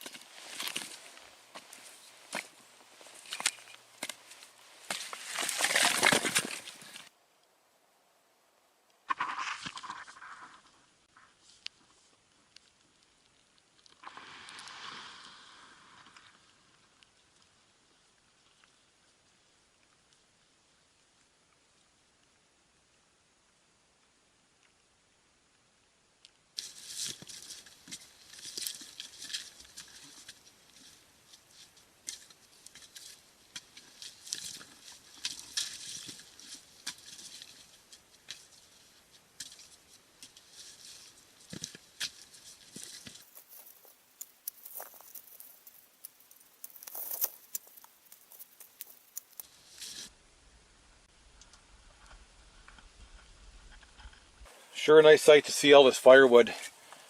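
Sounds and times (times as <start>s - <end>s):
scratchy crunching and crackling: 0.0s - 7.1s, 26.6s - 50.1s.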